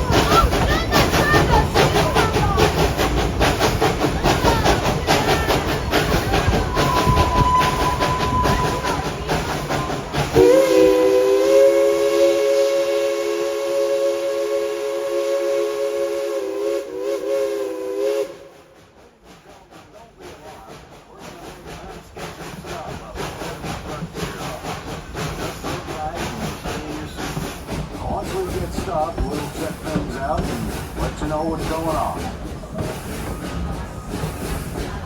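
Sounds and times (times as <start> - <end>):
steam locomotive chuffing: 0.0 - 35.0
train chime whistle: 6.8 - 8.9.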